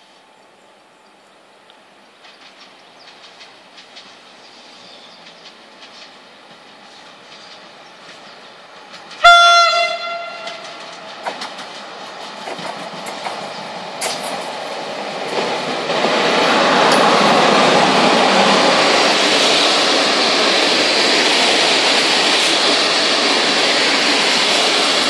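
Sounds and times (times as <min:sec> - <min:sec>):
train running noise: 0:01.0 - 0:25.0
locomotive horn blast: 0:09.2 - 0:10.7
wheels clicking over rails: 0:10.2 - 0:25.0.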